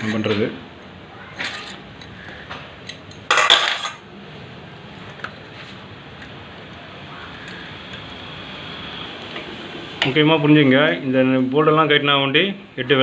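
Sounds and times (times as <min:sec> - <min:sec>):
metal tools clinking: 0:02.8 - 0:04.0.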